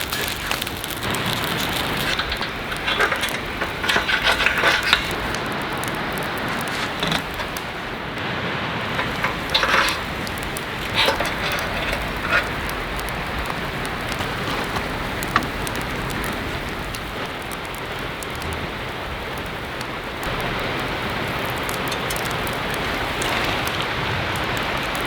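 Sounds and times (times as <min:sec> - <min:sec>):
rustling bursts: 0:00.0 - 0:17.3
rain on a tent: 0:00.0 - 0:25.0.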